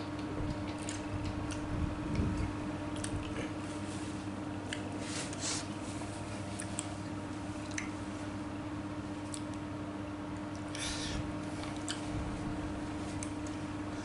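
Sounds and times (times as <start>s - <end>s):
wet chewing and mouth smacks: 0.1s - 3.5s, 11.5s - 12.1s.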